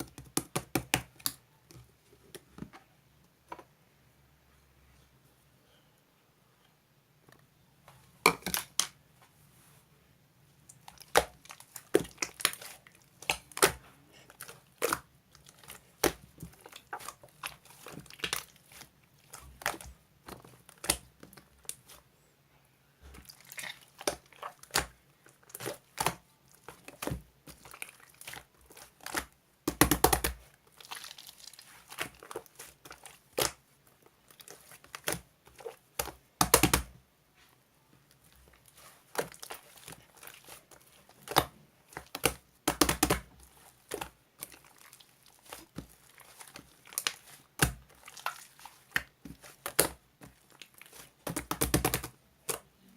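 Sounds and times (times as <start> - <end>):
crinkly material crumpled and torn: 30.4 - 35.8, 43.3 - 51.2.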